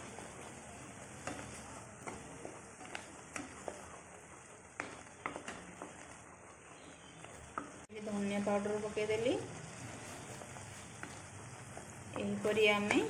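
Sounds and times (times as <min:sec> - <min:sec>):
spoon scraping a pan: 0:00.0 - 0:04.0
paste sizzling in oil: 0:00.0 - 0:13.0.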